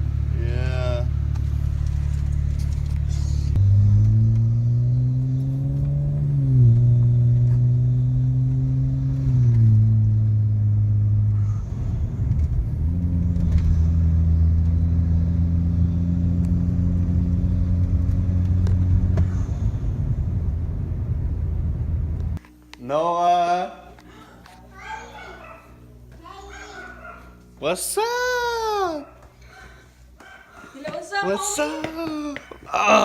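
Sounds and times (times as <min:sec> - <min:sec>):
road rumble: 0:00.0 - 0:22.9, 0:23.5 - 0:33.0
car engine hum: 0:00.0 - 0:33.0.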